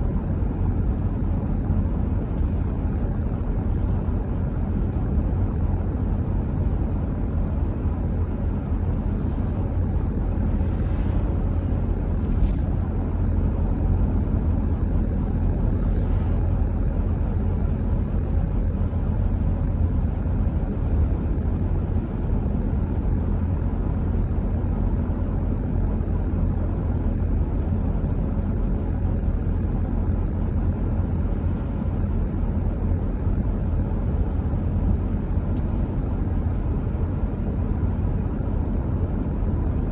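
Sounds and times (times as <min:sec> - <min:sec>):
car driving at steady speed: 0:00.0 - 0:39.9.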